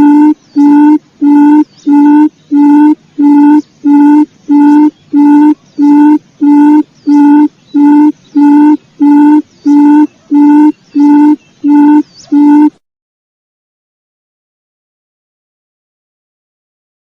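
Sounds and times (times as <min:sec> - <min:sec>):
low hooting quail call: 0:00.0 - 0:12.8.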